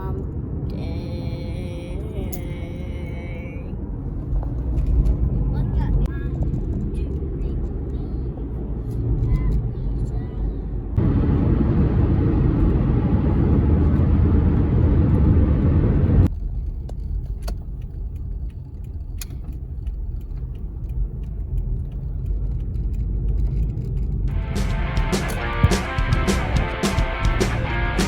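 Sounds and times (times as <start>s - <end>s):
car road noise rumble: 0.0s - 28.0s
small clicks: 16.3s - 24.3s.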